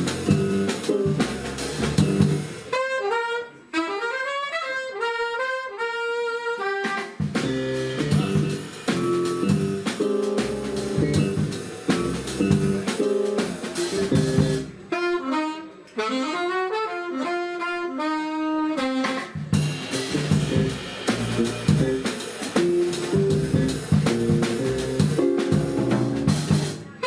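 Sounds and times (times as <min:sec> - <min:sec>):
bass: 0:00.0 - 0:02.7, 0:07.3 - 0:14.9, 0:19.5 - 0:26.9
drum kit: 0:00.0 - 0:02.9, 0:06.7 - 0:15.0, 0:18.8 - 0:27.0
saxophone: 0:01.9 - 0:25.5.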